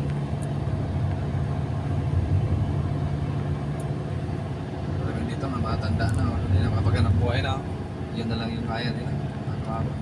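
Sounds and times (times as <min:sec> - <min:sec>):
car engine running: 0:00.0 - 0:10.0
road noise: 0:00.0 - 0:10.0.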